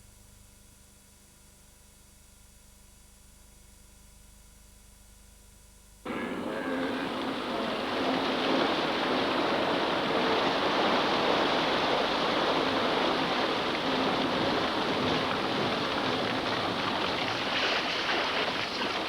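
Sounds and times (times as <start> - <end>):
heavy splashing and churning water: 6.1 - 19.0.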